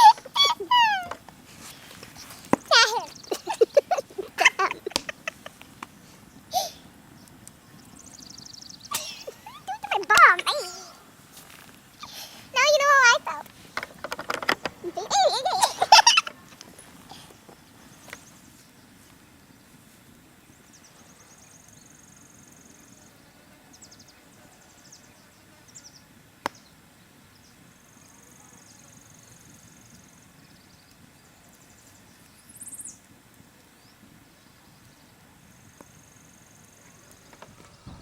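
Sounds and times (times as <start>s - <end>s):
high falling call: 0.0s - 5.5s.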